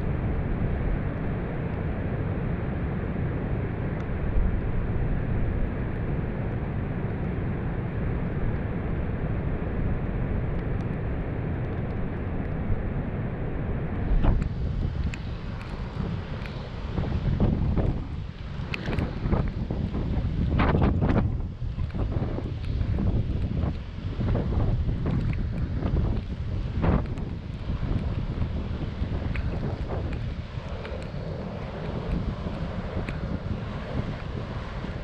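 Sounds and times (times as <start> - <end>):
heavy surf roaring: 9.0 - 35.0
wind buffeting microphone: 9.4 - 35.0.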